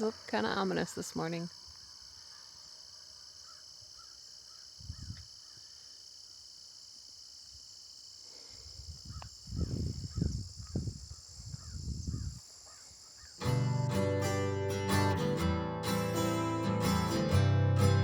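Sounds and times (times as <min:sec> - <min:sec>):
crickets and insects chirring: 0:00.0 - 0:14.0.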